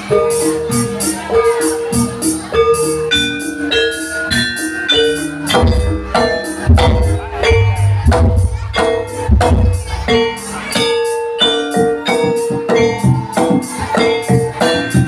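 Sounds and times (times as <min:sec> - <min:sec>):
gamelan metal keys and gongs: 0:00.0 - 0:15.0
deep drumming: 0:05.6 - 0:10.4.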